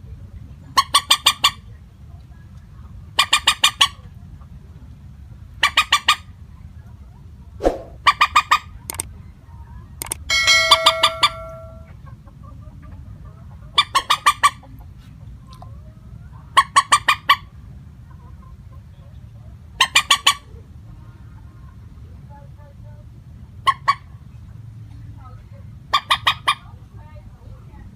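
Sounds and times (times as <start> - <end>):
low steady hum: 8.8 - 12.2.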